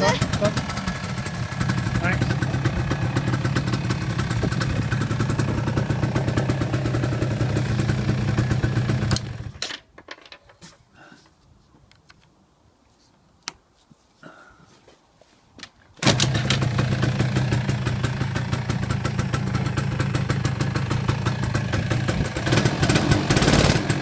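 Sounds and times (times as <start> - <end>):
quad bike engine running: 0.0 - 9.6, 16.0 - 24.0.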